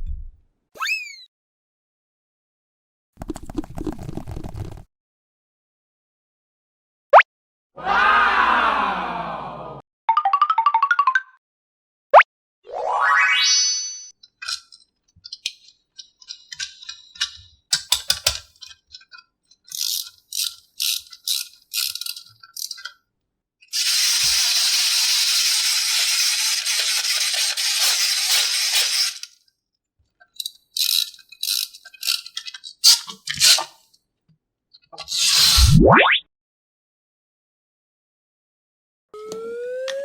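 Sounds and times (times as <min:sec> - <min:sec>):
short clicks and rattles: 0:14.4 - 0:23.0.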